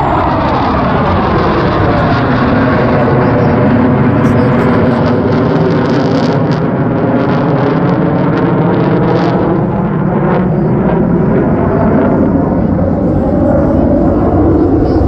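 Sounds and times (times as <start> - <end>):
jet engines running loud: 0.0 - 15.0.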